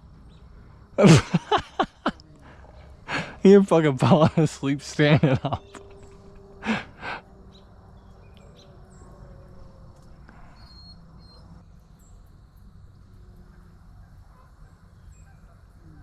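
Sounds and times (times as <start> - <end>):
faint high chirps: 9.9 - 13.0.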